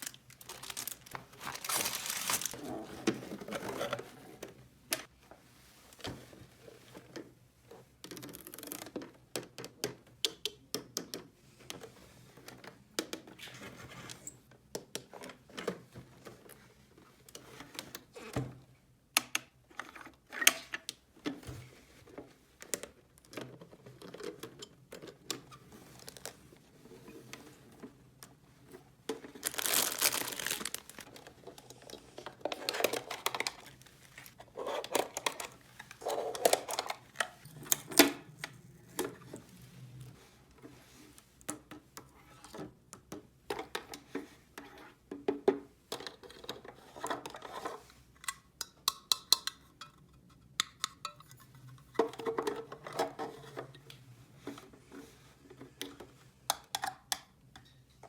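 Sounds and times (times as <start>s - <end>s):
plastic packaging crinkling and tearing: 0.0s - 2.6s, 29.3s - 31.3s.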